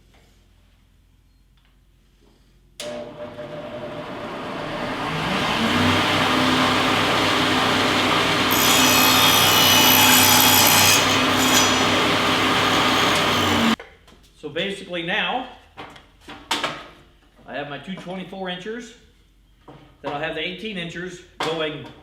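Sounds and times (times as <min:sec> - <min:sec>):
electric saw whining: 0:02.8 - 0:13.8
saw blade cutting wood: 0:04.7 - 0:13.8.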